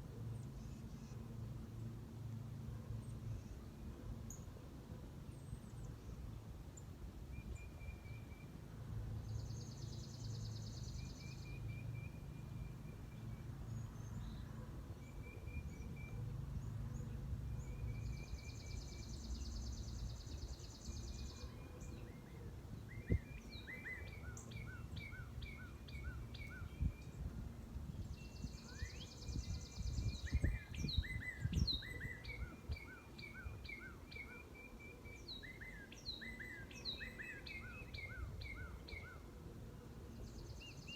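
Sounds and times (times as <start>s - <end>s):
wind rumble: 26.5s - 32.7s.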